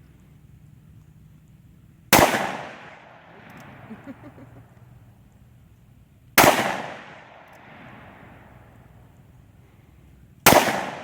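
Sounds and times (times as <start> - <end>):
gunshot: 2.2 - 3.1, 6.4 - 8.0, 10.5 - 11.0.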